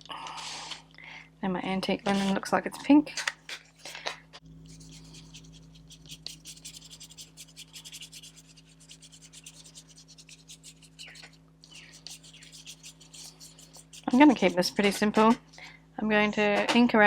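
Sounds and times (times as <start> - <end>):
tool scratching on paper: 3.5 - 15.1.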